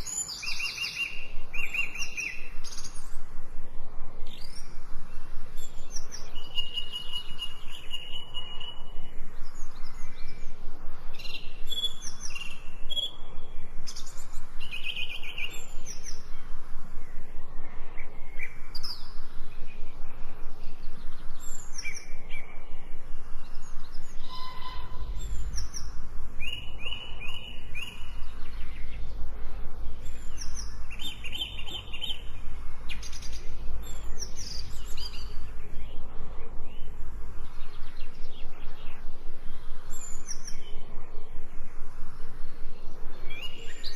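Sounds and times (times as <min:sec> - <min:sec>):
birds chirping and singing: 0:00.0 - 0:03.2, 0:20.6 - 0:40.9
low rumble: 0:15.5 - 0:43.3.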